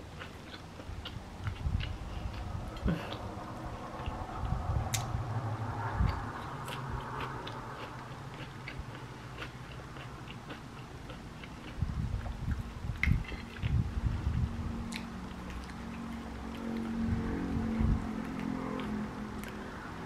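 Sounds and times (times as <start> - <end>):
chewing crunchy bread: 0.0 - 5.1, 6.0 - 19.9
wet mouth clicks: 4.9 - 5.1, 14.9 - 16.9.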